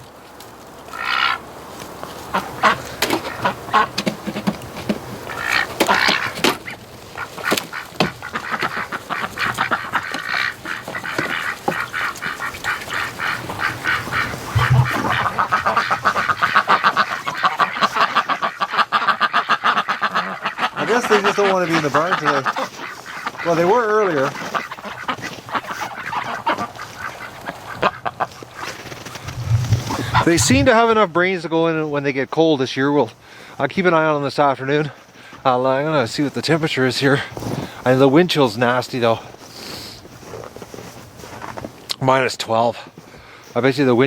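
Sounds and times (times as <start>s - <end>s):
ducks quacking: 0.9s - 1.4s, 2.2s - 4.3s, 5.2s - 30.9s
geese honking: 0.9s - 1.5s, 2.2s - 4.4s, 5.2s - 30.9s.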